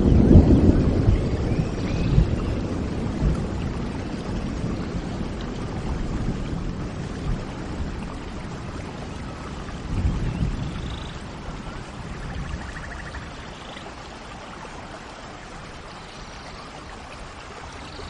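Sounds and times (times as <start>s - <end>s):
low rumble of thunder: 0.0s - 14.0s
steady rain: 0.0s - 18.0s.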